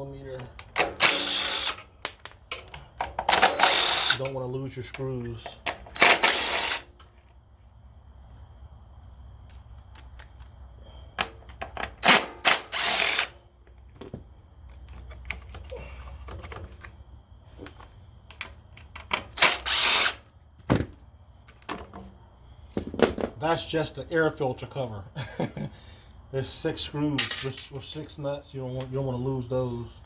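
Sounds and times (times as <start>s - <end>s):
small clicks of handling screws: 0.4s - 7.1s, 11.2s - 17.0s, 17.6s - 20.2s
cordless drill spinning out screws: 0.9s - 1.9s, 3.4s - 4.2s, 6.0s - 6.9s, 12.0s - 13.4s, 19.2s - 20.2s.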